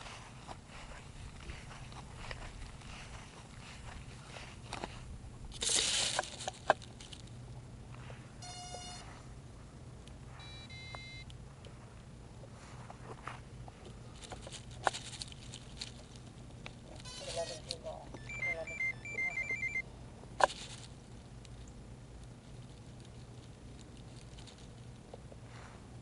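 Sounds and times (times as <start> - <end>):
steady low hum: 0.0 - 26.0
short electronic beeps: 8.4 - 9.1, 10.4 - 11.2, 17.1 - 17.6, 18.2 - 19.8.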